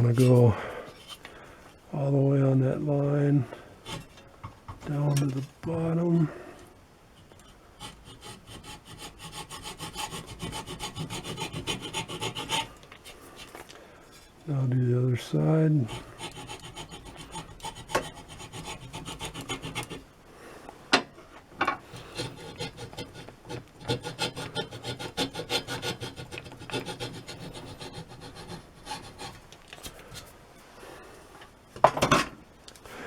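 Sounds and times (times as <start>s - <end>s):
hacksaw cutting wood: 3.9s - 4.2s, 7.8s - 13.5s, 15.8s - 20.0s, 21.8s - 29.4s.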